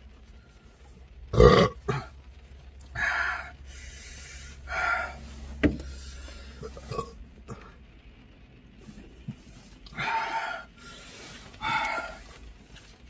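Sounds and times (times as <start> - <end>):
man burping: 1.3 - 2.1, 6.6 - 7.7
breathy exhalations: 2.9 - 7.8, 9.8 - 12.6.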